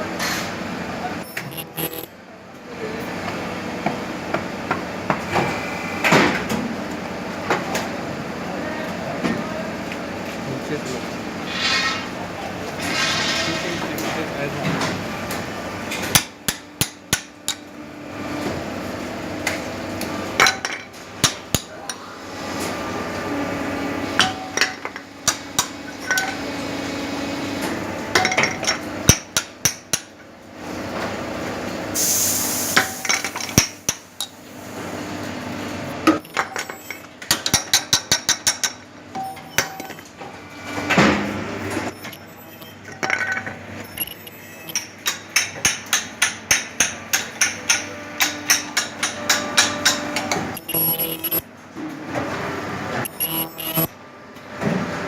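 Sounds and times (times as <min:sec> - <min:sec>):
steady machine hum: 0:00.0 - 0:32.0, 0:38.5 - 0:55.0
air hiss: 0:32.0 - 0:33.2.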